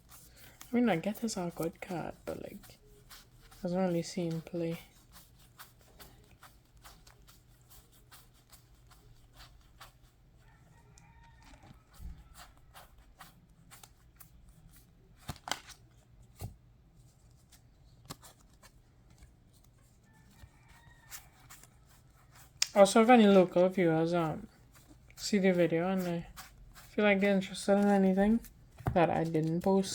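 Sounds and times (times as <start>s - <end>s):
trading cards clicking and rustling: 15.1s - 16.5s.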